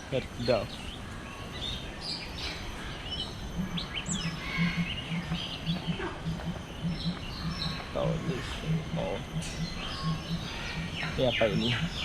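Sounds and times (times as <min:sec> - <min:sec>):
birds chirping: 0:00.0 - 0:12.0
low pulsing sound: 0:03.4 - 0:12.0.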